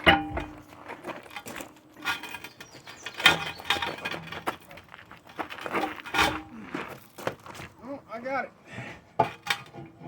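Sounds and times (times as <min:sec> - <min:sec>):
tire tools clinking on wheel rim: 0:00.0 - 0:07.2.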